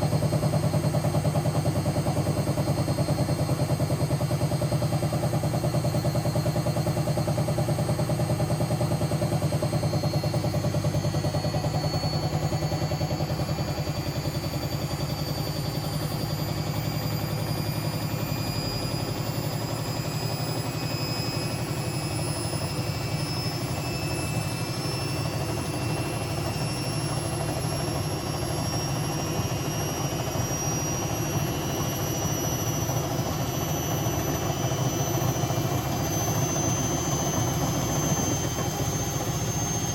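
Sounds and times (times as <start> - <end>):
motor whine rising in pitch: 0.0 - 39.9.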